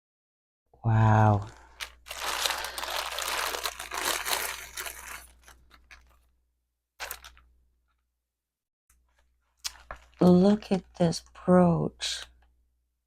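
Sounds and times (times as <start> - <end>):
packaging crinkling: 1.6 - 6.3, 7.0 - 8.0, 9.1 - 11.0.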